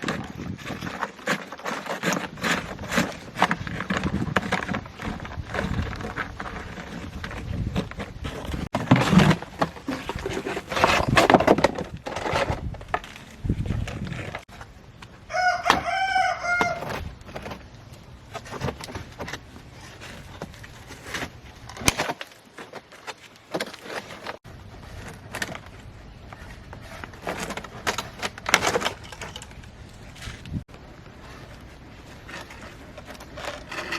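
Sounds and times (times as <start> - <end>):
rooster crowing: 15.3 - 16.9.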